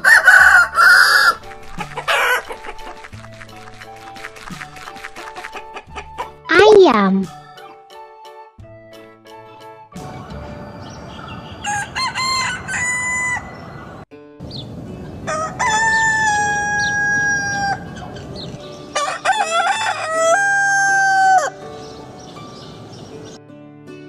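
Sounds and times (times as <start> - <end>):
rooster crowing: 0.0 - 1.4, 11.2 - 14.0, 15.3 - 18.0, 19.0 - 21.6.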